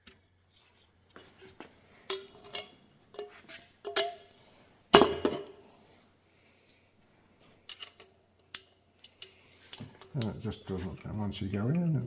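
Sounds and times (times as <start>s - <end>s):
metal clinks and knocks: 7.7s - 11.0s.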